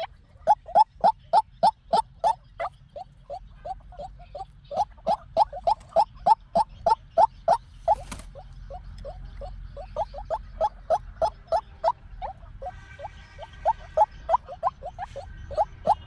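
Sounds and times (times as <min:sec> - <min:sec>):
waterhen calling rising notes: 0:13.0 - 0:16.0.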